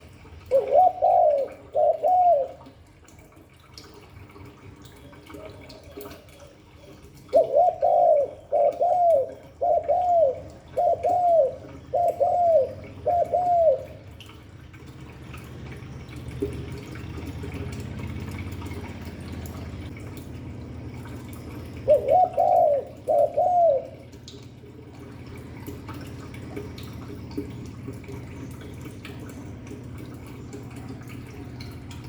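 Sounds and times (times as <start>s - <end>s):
dove cooing: 0.4s - 2.8s, 5.2s - 14.4s, 20.8s - 32.0s.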